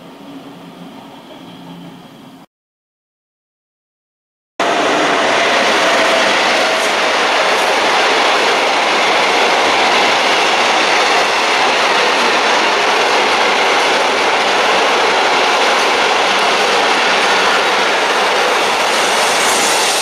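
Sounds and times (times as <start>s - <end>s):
train wheels rushing on rails: 4.6s - 20.0s.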